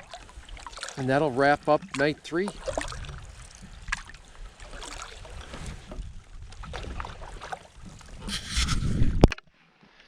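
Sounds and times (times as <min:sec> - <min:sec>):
paddles splashing in water: 0:00.0 - 0:10.0
wind rumbling on microphone: 0:02.6 - 0:09.4.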